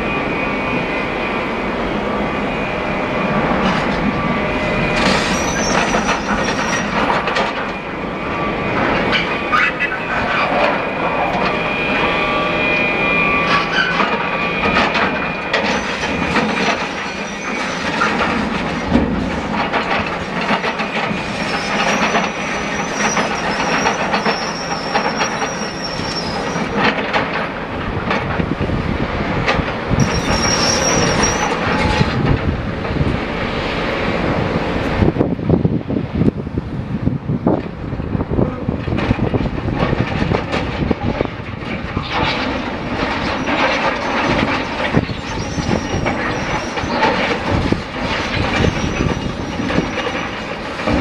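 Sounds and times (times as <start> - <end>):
high metallic squeal: 0.0 - 19.0, 20.3 - 26.9, 29.9 - 32.2, 43.2 - 47.4, 48.0 - 50.6
machinery clatter and knocks: 4.9 - 7.8, 13.4 - 25.6, 26.4 - 33.2, 38.7 - 51.0.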